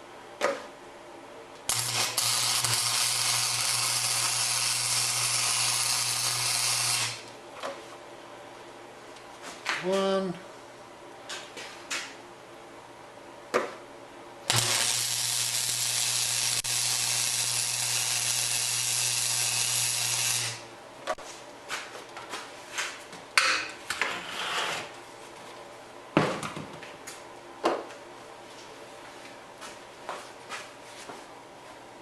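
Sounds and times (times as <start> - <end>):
low electrical hum: 0.0 - 32.0
welding arc hissing: 1.7 - 7.2, 14.5 - 20.7.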